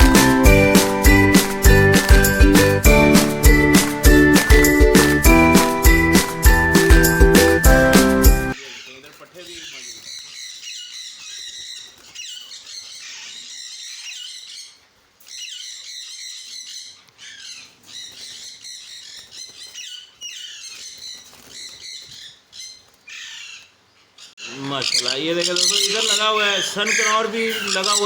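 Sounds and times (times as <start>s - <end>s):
parrots squawking and chirping: 8.5s - 28.0s.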